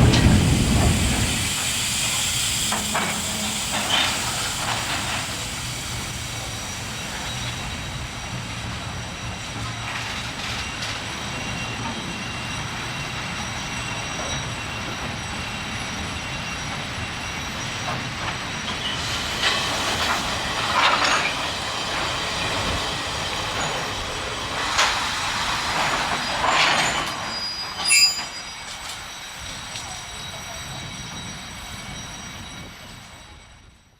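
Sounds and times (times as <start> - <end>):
train wagons rumbling: 0.0 - 33.8
high-pitched wheel squeals: 26.2 - 33.6.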